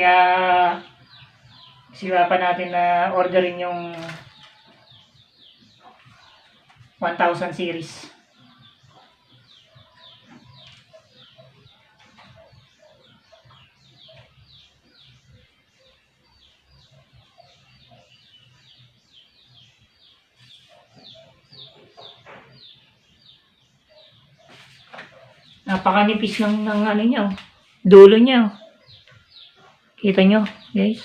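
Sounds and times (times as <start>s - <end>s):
faint birds chirping: 0.0s - 31.0s.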